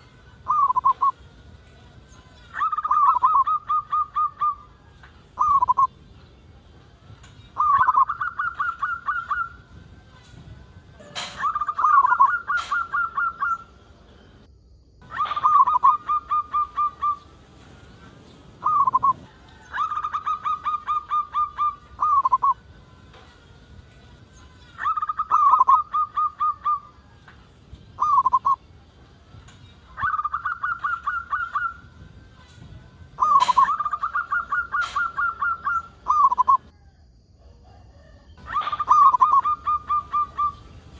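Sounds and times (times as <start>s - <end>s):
dove cooing: 0.4s - 1.1s, 2.5s - 4.7s, 5.4s - 5.9s, 7.6s - 9.6s, 11.0s - 13.7s, 15.0s - 17.3s, 18.6s - 22.6s, 24.8s - 27.0s, 28.0s - 28.6s, 30.0s - 31.9s, 33.2s - 36.7s, 38.4s - 40.7s.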